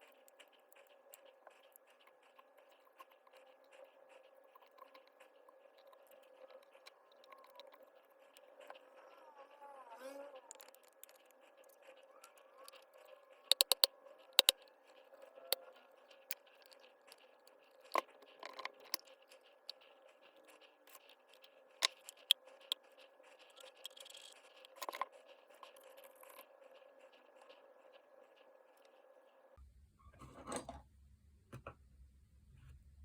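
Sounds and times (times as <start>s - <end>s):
light scraping of parts: 0.0s - 29.4s
hand tools clicking and tapping: 13.5s - 14.6s.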